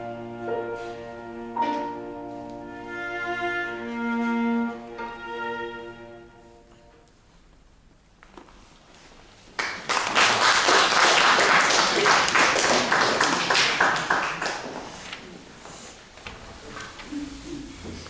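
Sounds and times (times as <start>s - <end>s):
audience applause: 9.6s - 15.1s.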